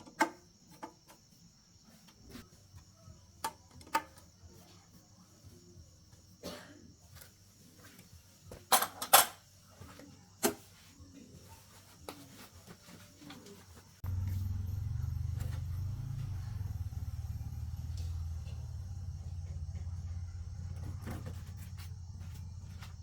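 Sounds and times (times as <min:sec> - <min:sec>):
tractor engine idling: 0:14.0 - 0:23.0.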